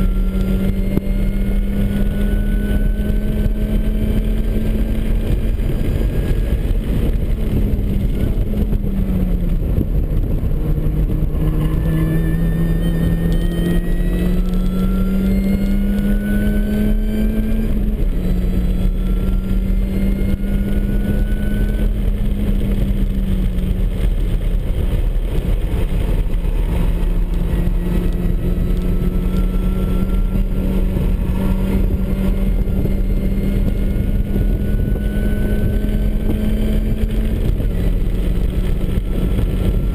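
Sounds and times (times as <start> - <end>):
road and wind noise: 0.0 - 39.9
car engine revving hard: 10.4 - 39.9.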